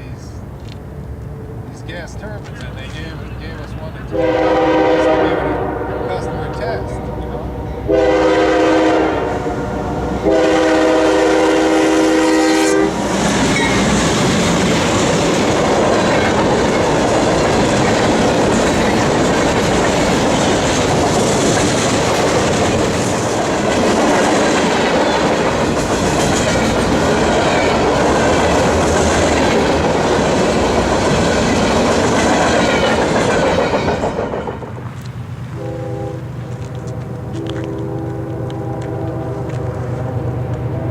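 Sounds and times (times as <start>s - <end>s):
train wheels rumbling on rails: 0.0s - 40.9s
locomotive air horn: 4.1s - 13.0s, 35.6s - 40.9s.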